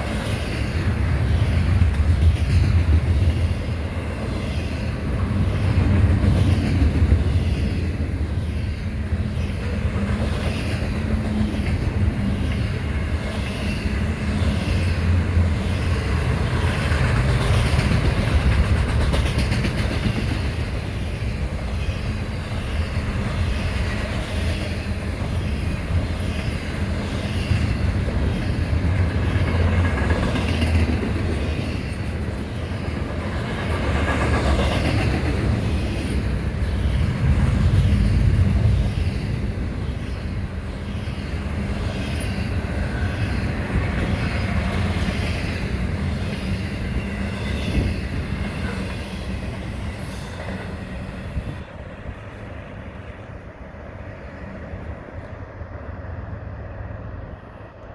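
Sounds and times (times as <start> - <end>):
freight train rumbling: 0.0 - 57.9
wheels clicking over rail joints: 9.2 - 50.6.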